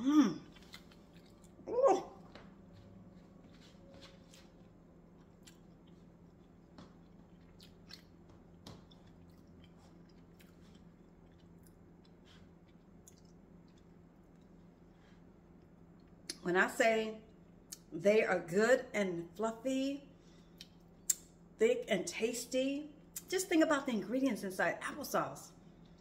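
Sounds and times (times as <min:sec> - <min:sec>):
low steady hum: 0:00.0 - 0:26.0
person chewing: 0:00.3 - 0:16.4.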